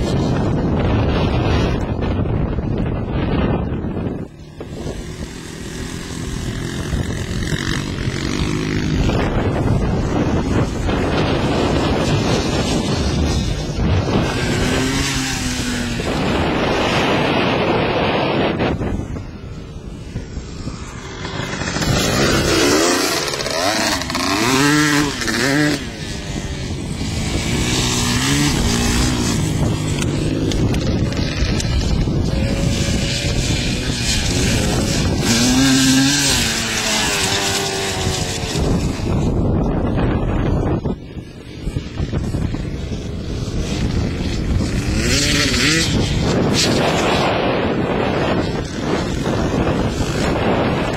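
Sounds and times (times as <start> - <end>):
dirt bike engine running: 0.0 - 50.9
wind buffeting microphone: 0.0 - 50.9.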